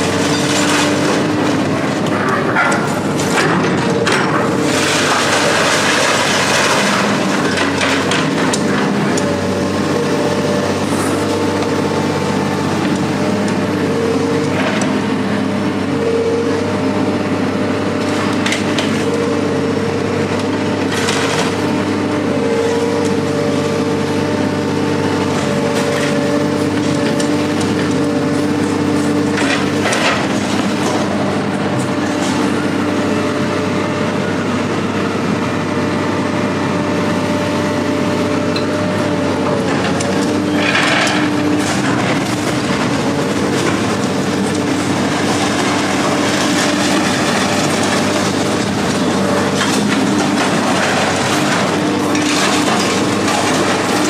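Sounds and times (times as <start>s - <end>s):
heavy machine engine running: 0.0s - 54.0s.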